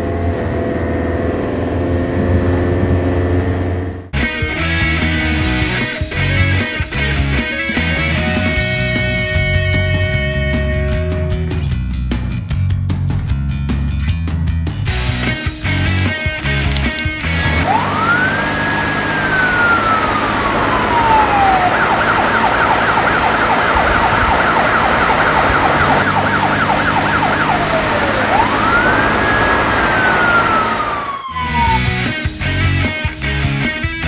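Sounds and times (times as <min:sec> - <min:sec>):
police siren wail and yelp: 0:17.4 - 0:32.2.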